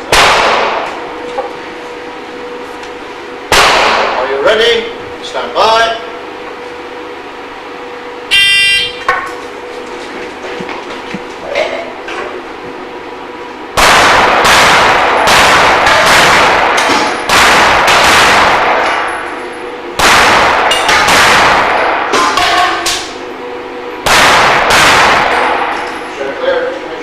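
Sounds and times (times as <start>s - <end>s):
rapid pistol shots: 0.1s - 0.9s, 3.5s - 4.2s, 13.8s - 19.1s, 20.0s - 22.2s, 24.0s - 25.8s.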